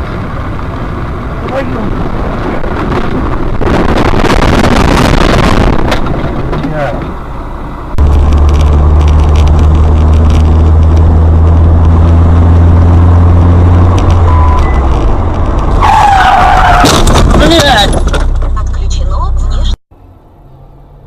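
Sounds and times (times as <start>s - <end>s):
road noise: 0.0s - 21.0s
vehicle engine droning: 0.0s - 21.0s
short beep: 14.2s - 15.0s.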